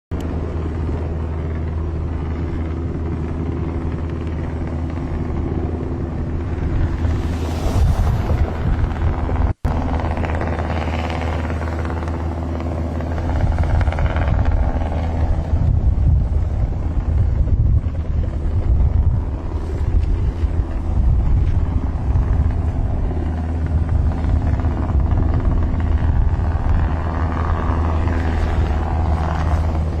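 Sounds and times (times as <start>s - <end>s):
deep engine drone: 0.1s - 30.0s.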